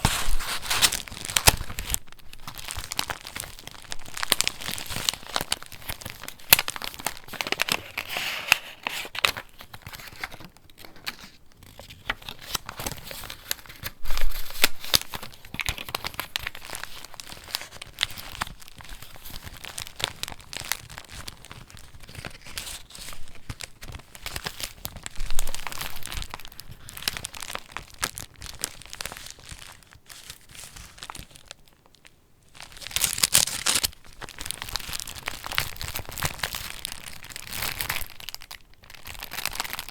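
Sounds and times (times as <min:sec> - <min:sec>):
paper pages rustling: 0:00.0 - 0:31.3.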